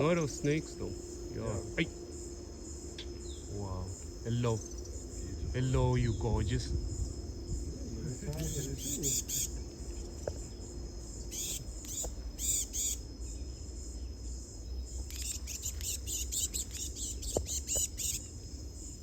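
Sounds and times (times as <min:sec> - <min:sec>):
low rumble: 0:00.0 - 0:12.3
high insect trill: 0:00.0 - 0:19.0
insects chirping in rapid pulses: 0:00.0 - 0:19.0.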